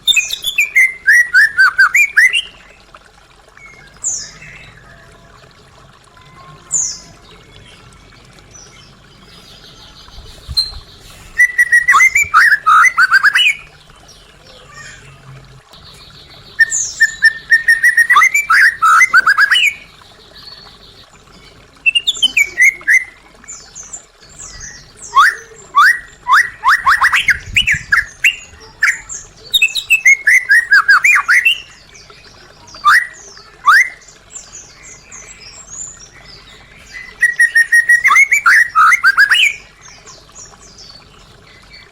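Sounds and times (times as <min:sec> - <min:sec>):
bird singing whistled notes: 0:10.5 - 0:13.7, 0:16.6 - 0:19.8, 0:21.8 - 0:23.2, 0:24.5 - 0:31.7, 0:32.8 - 0:34.0, 0:37.0 - 0:39.6.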